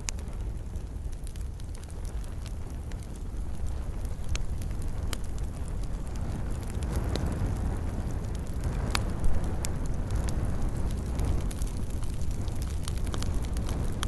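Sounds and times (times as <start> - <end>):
fire crackles and pops: 0.0 - 14.0
fire flames rumbling: 0.0 - 14.0.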